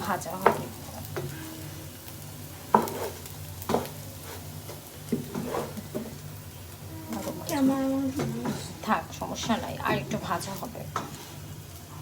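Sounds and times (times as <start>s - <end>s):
rice sizzling in pot: 0.0s - 12.0s
spatula scraping and knocking pot: 2.7s - 6.2s, 10.9s - 11.4s.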